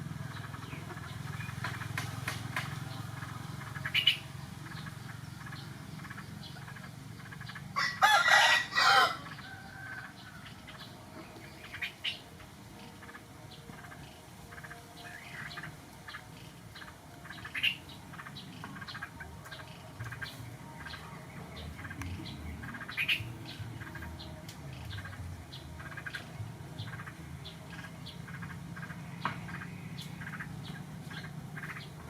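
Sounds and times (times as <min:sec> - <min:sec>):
rooster crowing: 0:07.8 - 0:10.5.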